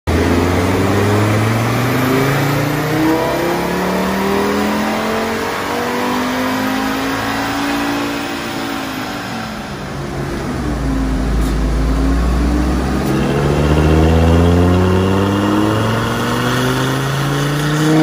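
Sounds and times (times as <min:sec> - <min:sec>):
car engine revving under full load: 0:00.1 - 0:18.0.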